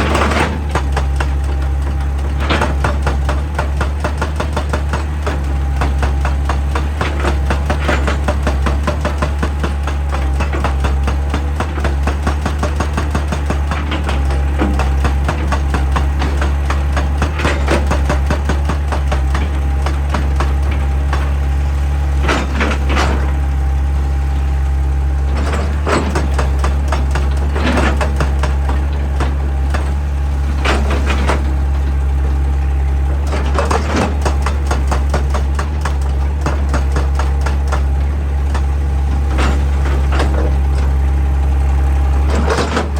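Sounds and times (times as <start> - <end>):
excavator knocking on rock: 0.0 - 24.5, 25.3 - 41.3, 42.2 - 42.9
diesel engine droning: 0.0 - 42.9.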